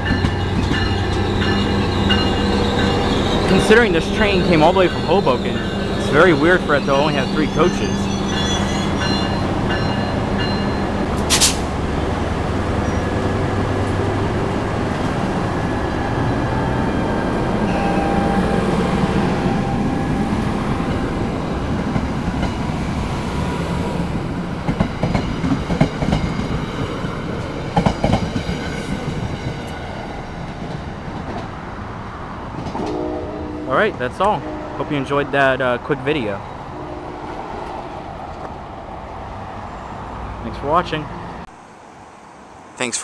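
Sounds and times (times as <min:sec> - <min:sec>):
diesel locomotive engine running: 0:00.0 - 0:23.3
sharp clank: 0:11.2 - 0:11.7.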